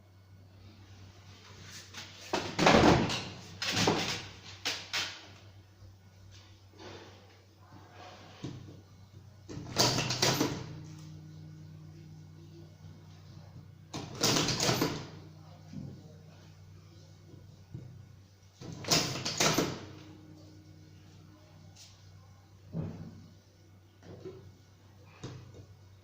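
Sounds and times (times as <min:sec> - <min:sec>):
low steady hum: 0:05.2 - 0:26.0.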